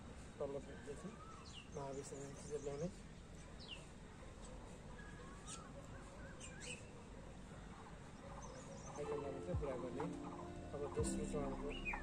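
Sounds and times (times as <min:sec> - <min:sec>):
birds chirping faintly: 0:00.0 - 0:12.0
low steady hiss: 0:08.8 - 0:12.0.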